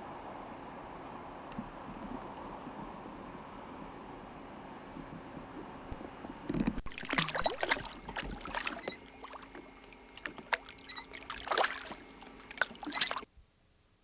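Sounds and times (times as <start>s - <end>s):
knocks and clatter in boat: 4.9s - 13.2s.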